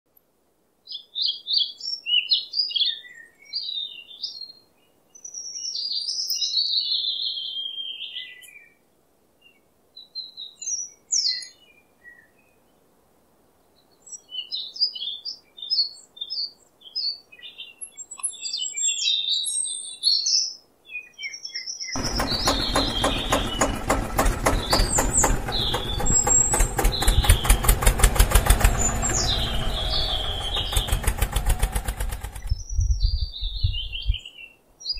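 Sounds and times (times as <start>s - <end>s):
small birds chirping: 0.8s - 8.8s, 9.4s - 12.9s, 13.6s - 34.9s
engine running with rapid pulse: 22.0s - 32.6s.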